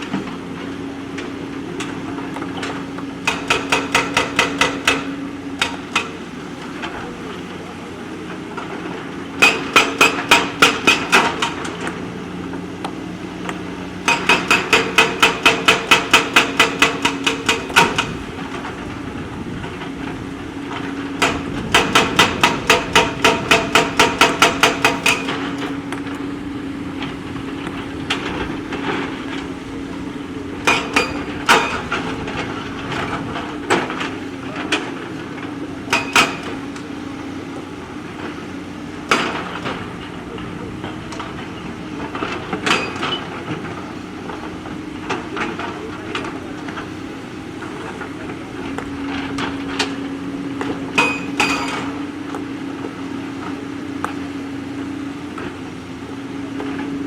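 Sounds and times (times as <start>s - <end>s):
diesel engine running: 0.0s - 57.0s
metal clanks: 14.0s - 18.8s, 30.6s - 34.9s, 42.1s - 43.7s, 51.0s - 52.0s.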